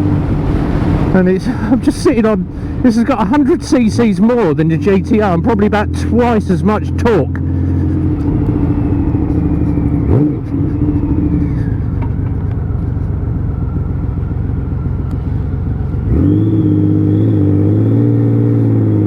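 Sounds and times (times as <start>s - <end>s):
wind rush: 0.0s - 5.0s
motorcycle engine running: 0.0s - 19.0s.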